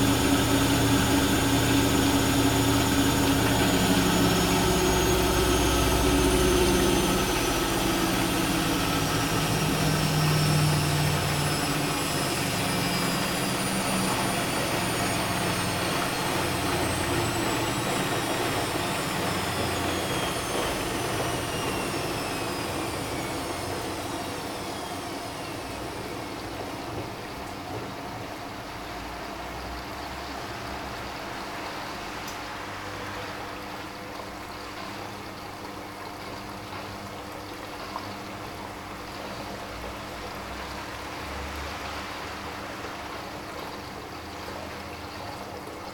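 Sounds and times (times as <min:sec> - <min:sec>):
washing machine drum rumble: 0:00.0 - 0:28.6
washing machine motor whine: 0:00.0 - 0:45.9.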